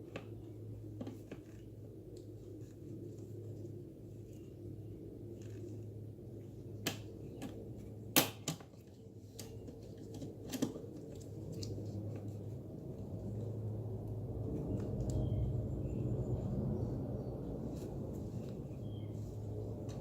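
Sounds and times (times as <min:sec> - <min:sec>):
steady low hum: 0:08.8 - 0:20.0.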